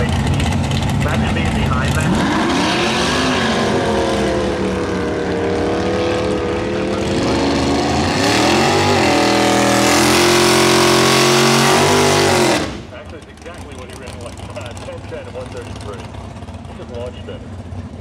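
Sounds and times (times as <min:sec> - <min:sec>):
car engine held at high revs: 0:00.0 - 0:17.3
drag-racing engines accelerating: 0:00.0 - 0:18.0.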